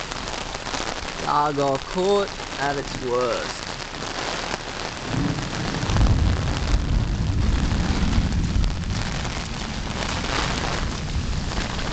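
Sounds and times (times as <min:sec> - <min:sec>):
heavy rain falling: 0:00.0 - 0:11.9
deep rumble: 0:05.1 - 0:11.9.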